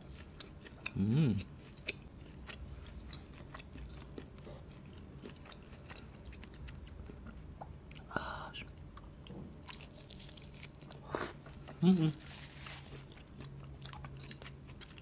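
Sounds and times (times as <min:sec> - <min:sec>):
person chewing meat: 0:00.0 - 0:15.0
person humming mmm: 0:00.9 - 0:01.5, 0:11.0 - 0:12.4.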